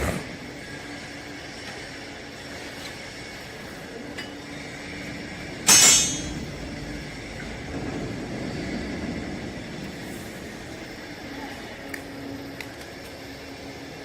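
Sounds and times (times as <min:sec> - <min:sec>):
loud ringing bang: 0:05.7 - 0:06.5.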